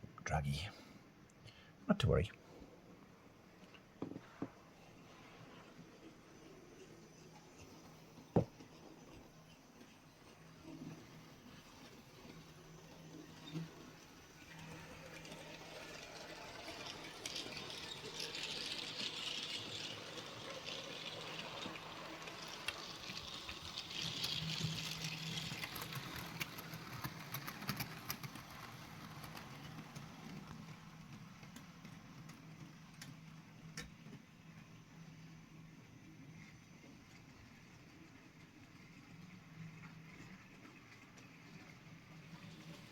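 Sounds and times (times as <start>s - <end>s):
model train motor hum: 9.8s - 34.2s.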